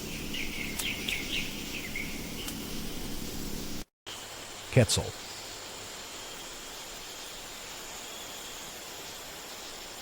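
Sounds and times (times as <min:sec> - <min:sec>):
outdoor hiss: 0:00.0 - 0:10.0.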